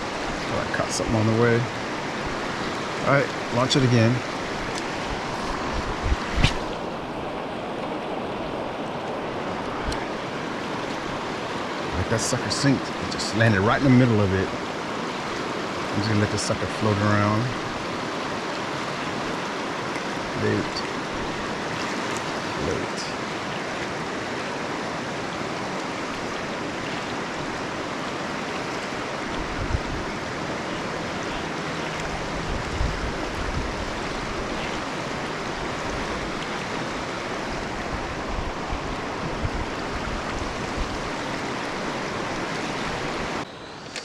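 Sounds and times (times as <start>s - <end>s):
river rapids rushing: 0.0s - 44.0s.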